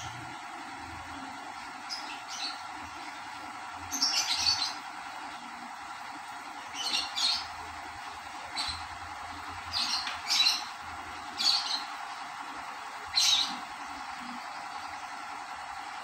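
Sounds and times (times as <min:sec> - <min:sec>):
small bird chirping: 0:01.8 - 0:02.7, 0:03.9 - 0:04.9, 0:06.7 - 0:07.6, 0:09.6 - 0:11.9, 0:13.1 - 0:13.7.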